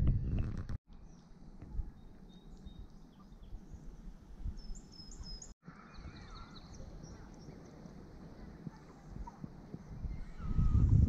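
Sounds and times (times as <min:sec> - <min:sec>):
small bird chirping: 0:00.9 - 0:07.9.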